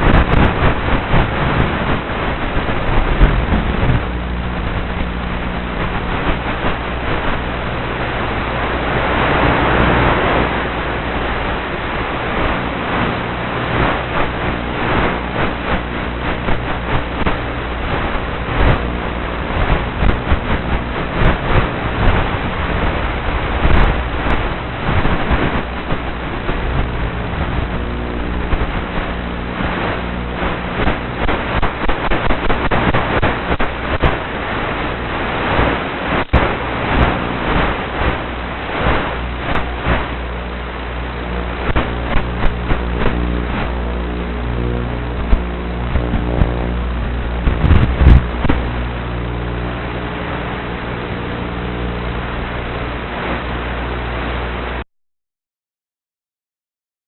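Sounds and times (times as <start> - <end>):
rushing wind noise: 0.0 - 54.8
short crackles: 0.1 - 52.0
model plane motor humming: 39.1 - 52.7.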